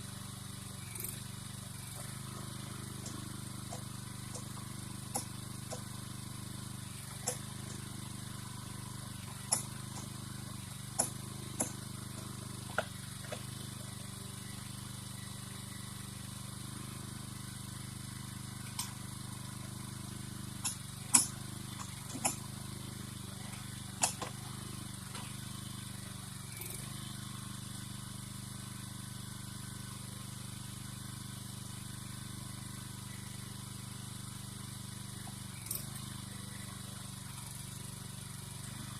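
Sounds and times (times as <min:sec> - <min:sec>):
engine running at low revs: 0:00.0 - 0:30.9
sharp clicks and knocks: 0:02.0 - 0:05.9, 0:07.0 - 0:07.9, 0:09.2 - 0:13.9, 0:20.6 - 0:22.5, 0:23.4 - 0:24.5.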